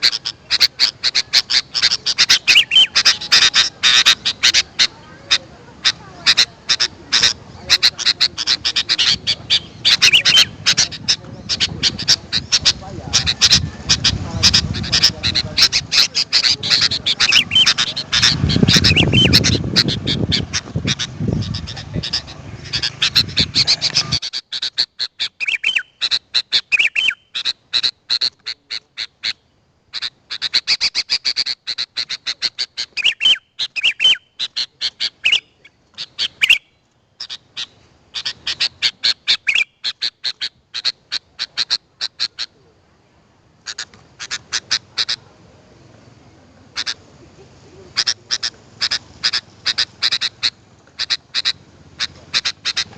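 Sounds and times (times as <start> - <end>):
bird chirping and whistling: 0.0 - 4.7, 9.0 - 27.4, 32.9 - 34.3, 35.0 - 35.6, 36.2 - 36.7, 39.3 - 40.0.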